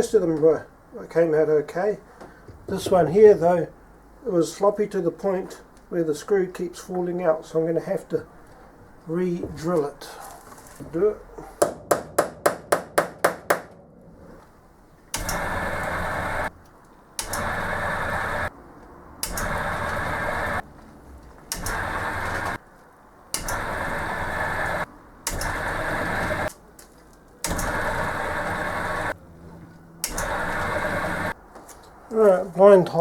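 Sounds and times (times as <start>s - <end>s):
electric drill boring metal: 15.2s - 16.5s, 17.2s - 18.5s, 19.2s - 20.6s, 21.5s - 22.6s, 23.4s - 26.5s, 27.5s - 29.2s, 30.0s - 31.3s.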